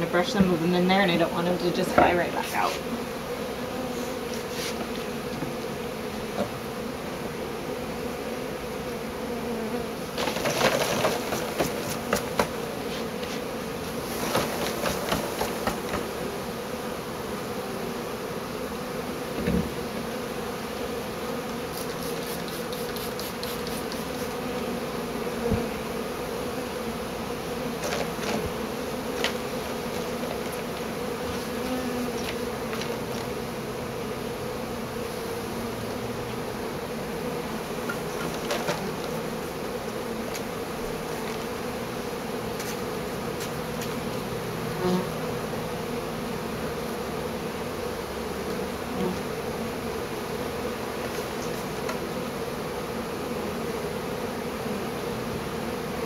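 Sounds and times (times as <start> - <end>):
honeybee swarm buzzing: 0.0 - 56.0
rustling and clicking from handling: 10.2 - 13.4, 27.8 - 28.5, 29.1 - 33.3, 37.9 - 39.2.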